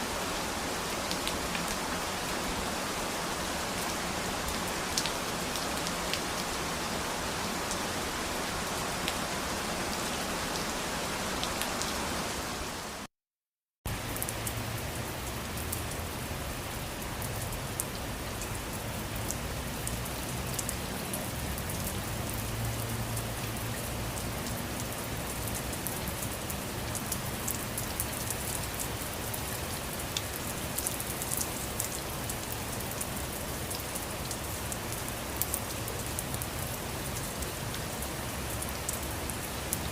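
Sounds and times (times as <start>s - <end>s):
steady rain falling: 0.0s - 13.1s, 13.9s - 39.9s
raindrops ticking on surface: 0.8s - 2.3s, 3.7s - 6.6s, 13.9s - 39.9s.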